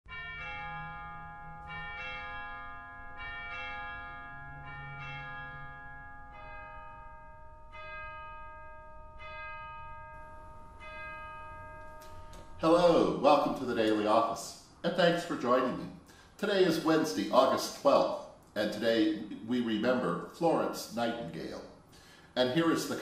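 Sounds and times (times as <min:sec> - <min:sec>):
bells ringing: 0:00.1 - 0:18.3.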